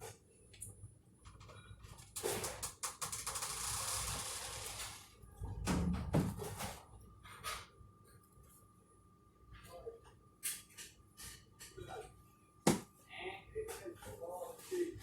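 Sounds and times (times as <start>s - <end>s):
knocks of produce handled: 12.6s - 12.9s.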